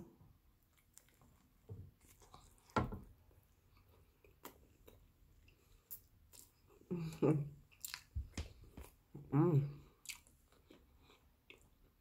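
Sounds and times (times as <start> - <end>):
chewing and wet mouth sounds: 0.6 - 12.0.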